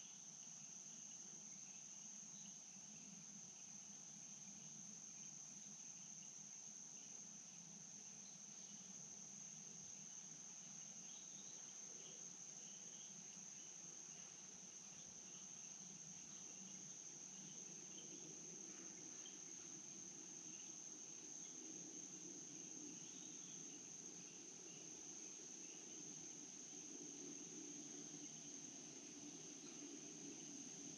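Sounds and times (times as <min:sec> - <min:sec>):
faint insect chirps: 0:00.0 - 0:30.9
insects trilling: 0:00.0 - 0:30.9.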